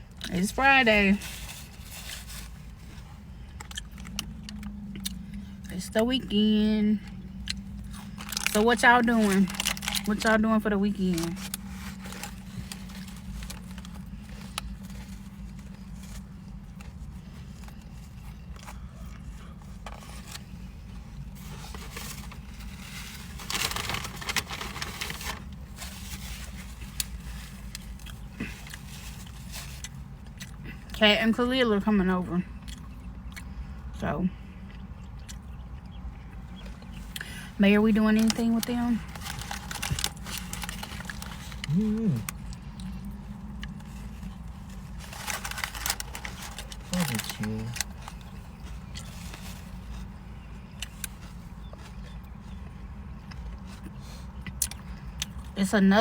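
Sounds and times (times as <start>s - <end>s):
crackly rustling: 0.0s - 31.5s, 34.4s - 55.8s
steady low hum: 0.0s - 56.0s
biting and chewing: 1.3s - 5.7s, 7.1s - 10.2s, 10.9s - 31.0s, 32.5s - 33.9s, 34.5s - 37.4s, 38.2s - 55.6s
person humming: 41.7s - 42.3s.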